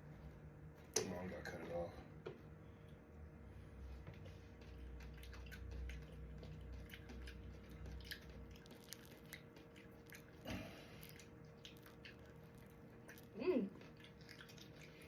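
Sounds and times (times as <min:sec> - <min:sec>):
wet squishing of fruit: 0:04.2 - 0:15.0.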